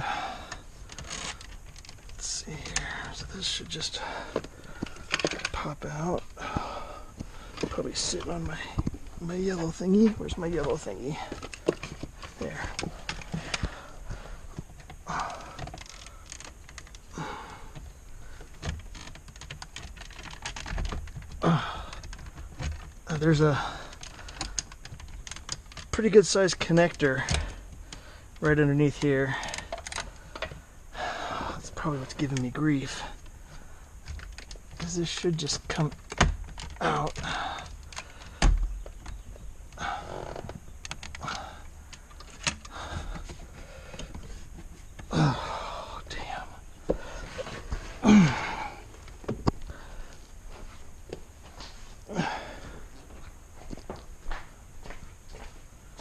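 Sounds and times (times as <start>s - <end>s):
plastic creaking and rubbing: 0.4s - 30.7s, 31.3s - 45.4s, 46.0s - 50.3s.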